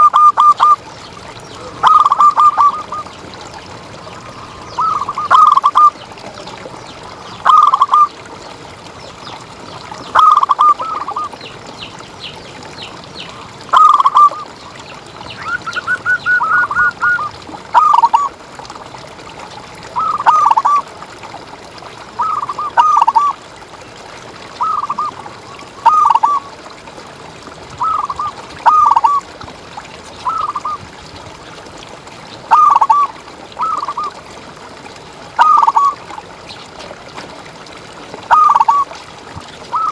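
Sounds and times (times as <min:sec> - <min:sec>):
dove cooing: 0:01.6 - 0:03.2, 0:04.3 - 0:06.0, 0:10.2 - 0:11.4, 0:15.4 - 0:18.3, 0:20.0 - 0:20.8, 0:27.8 - 0:29.2, 0:32.5 - 0:34.1, 0:35.4 - 0:36.0, 0:38.3 - 0:38.8.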